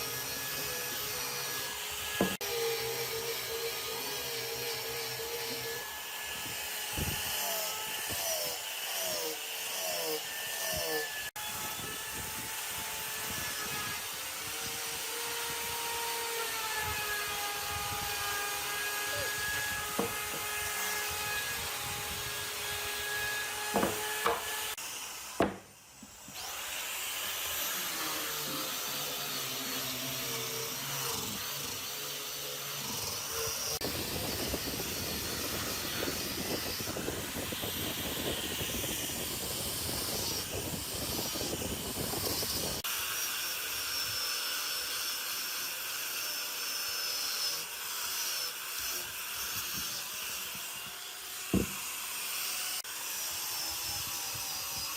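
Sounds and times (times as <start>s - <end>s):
rasping machine noise: 0.0s - 25.4s, 26.0s - 42.9s
power tool motor whine: 0.0s - 54.9s.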